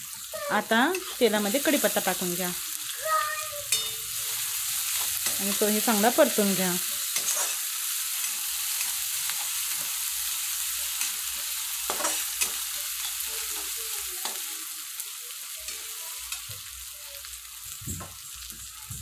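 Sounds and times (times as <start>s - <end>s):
onions sizzling in hot oil: 0.0s - 19.0s
metal spatula scraping a pan: 3.6s - 14.4s.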